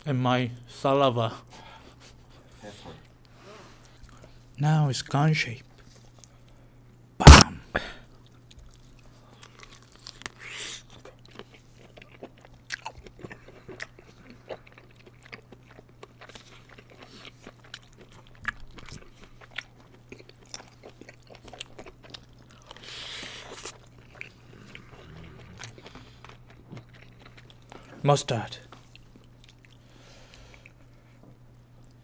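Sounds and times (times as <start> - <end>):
steady low hum: 0.0 - 32.0
person chewing sausage: 8.1 - 28.0, 28.6 - 32.0.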